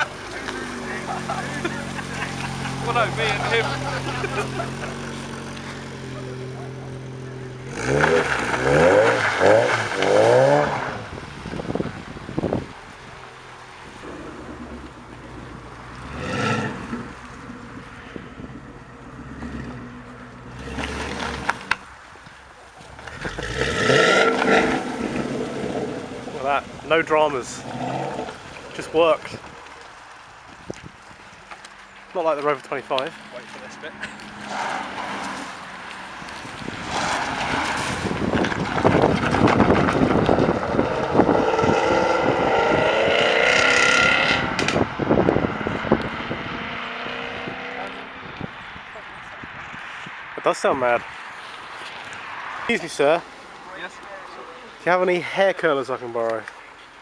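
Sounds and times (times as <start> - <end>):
car engine revving: 0.0 - 11.8, 12.4 - 21.8, 23.0 - 29.3, 32.3 - 48.4
wind buffeting microphone: 10.8 - 21.6, 36.1 - 51.4.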